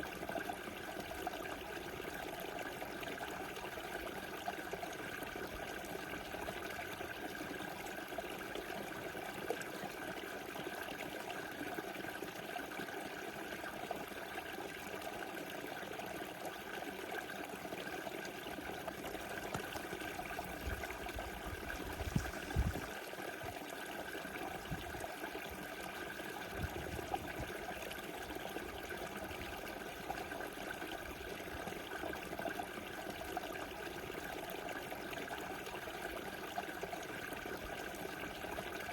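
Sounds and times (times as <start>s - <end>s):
river rushing and trickling: 19.2s - 25.1s.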